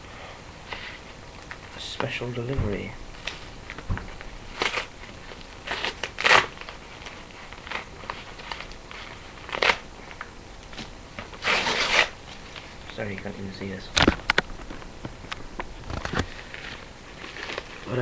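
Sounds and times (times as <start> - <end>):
packaging rustling and scraping: 3.2 - 13.2, 15.8 - 18.0.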